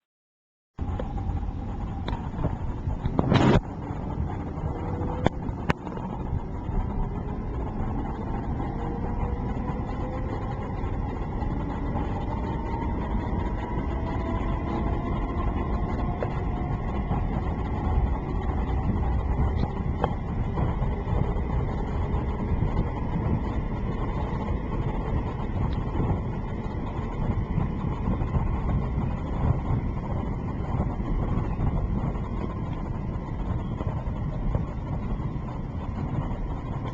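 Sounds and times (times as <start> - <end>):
faint rising whine: 0.8 - 36.9
train rumbling: 0.8 - 36.9.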